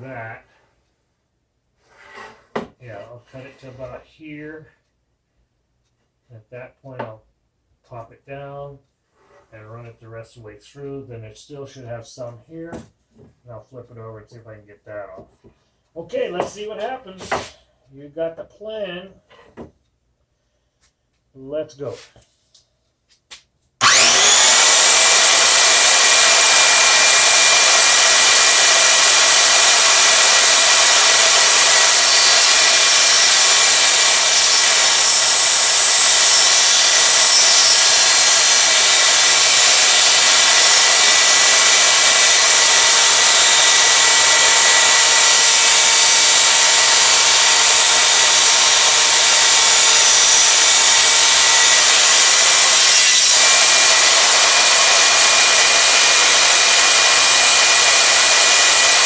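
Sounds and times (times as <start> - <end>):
miter saw cutting wood: 23.8 - 59.0.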